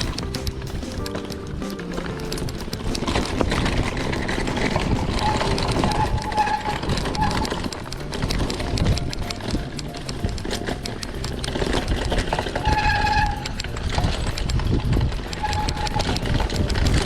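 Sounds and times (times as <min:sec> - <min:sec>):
bike chain and frame rattling: 0:00.0 - 0:17.0.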